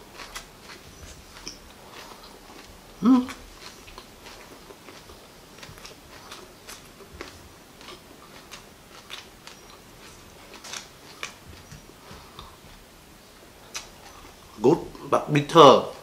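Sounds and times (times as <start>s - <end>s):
crunching and chewing: 0.0s - 12.8s, 13.5s - 14.6s.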